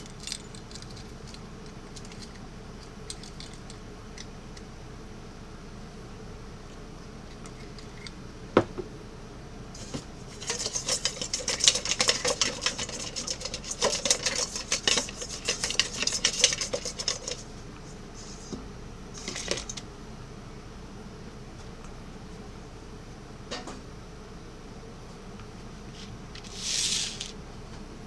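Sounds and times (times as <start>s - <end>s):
metal utensils clattering: 9.8s - 17.4s.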